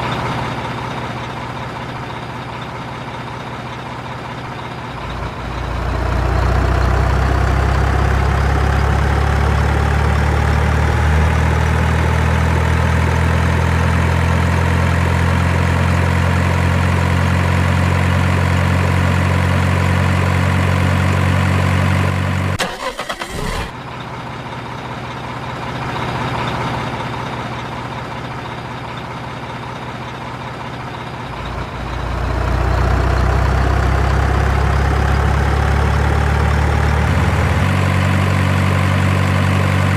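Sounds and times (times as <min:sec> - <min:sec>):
truck engine humming: 0:00.0 - 0:13.0, 0:22.6 - 0:23.7.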